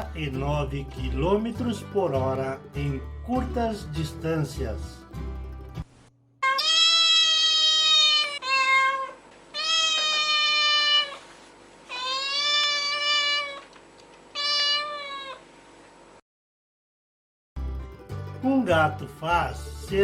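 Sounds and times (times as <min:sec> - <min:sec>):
cat meowing: 0:06.4 - 0:11.2, 0:11.9 - 0:15.5.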